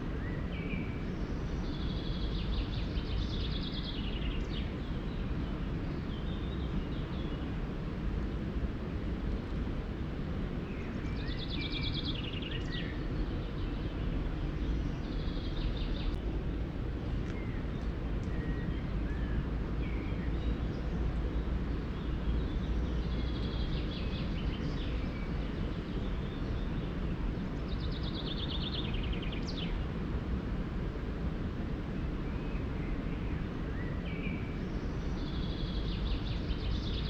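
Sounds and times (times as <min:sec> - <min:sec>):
steady low rushing noise: 0:01.1 - 0:37.0
songbird singing trilled phrases: 0:10.8 - 0:14.0, 0:27.6 - 0:29.8.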